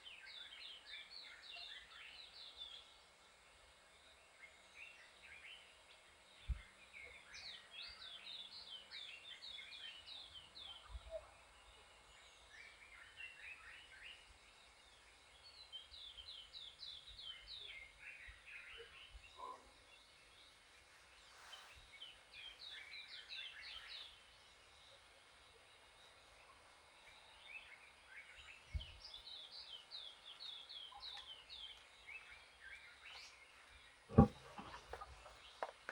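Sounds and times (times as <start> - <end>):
faint birdsong chirping: 0.0 - 35.9
soft low thump: 34.1 - 35.0.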